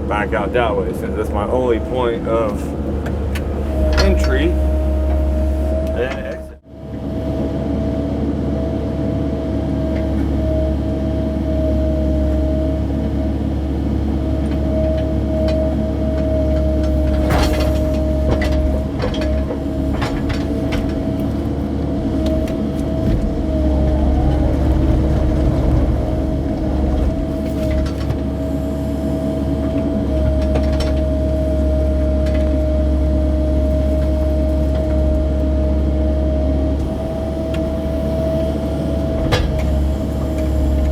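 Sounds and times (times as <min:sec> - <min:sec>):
excavator diesel engine running: 0:00.0 - 0:40.9
bucket shifting mud: 0:15.5 - 0:35.6.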